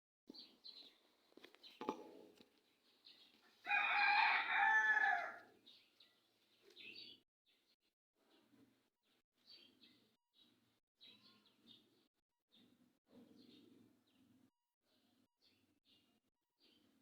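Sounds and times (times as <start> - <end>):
small birds chirping faintly: 0.3 - 17.0
rooster crowing: 3.6 - 5.5.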